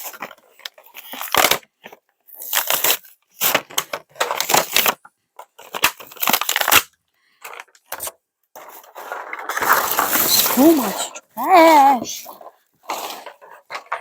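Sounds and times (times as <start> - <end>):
plastic packaging tearing and crumpling: 0.9 - 1.6, 2.3 - 5.0, 5.6 - 6.9, 9.0 - 12.4.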